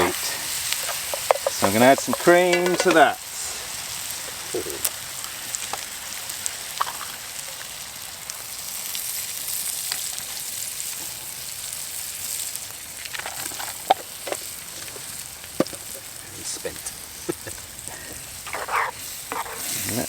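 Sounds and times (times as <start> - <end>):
sauce sizzling in a pan: 0.0 - 20.0
utensil clicking on pan: 0.5 - 3.2.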